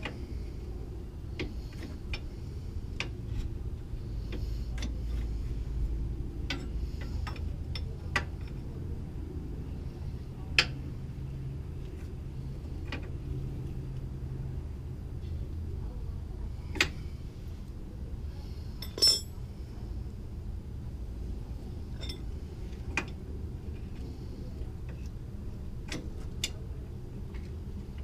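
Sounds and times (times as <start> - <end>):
metal tools clicking and tapping: 18.8 - 19.4.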